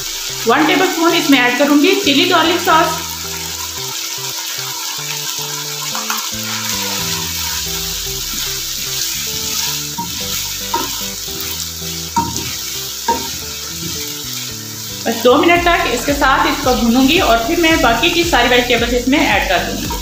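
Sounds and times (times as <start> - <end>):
food sizzling in a wok: 0.0 - 20.0
spatula scraping wok: 2.5 - 17.6.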